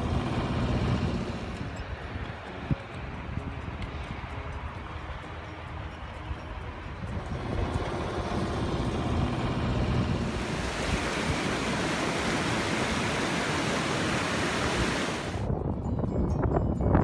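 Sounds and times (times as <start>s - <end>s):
wind buffeting microphone: 0.0s - 17.0s
rushing mountain stream: 10.1s - 15.5s.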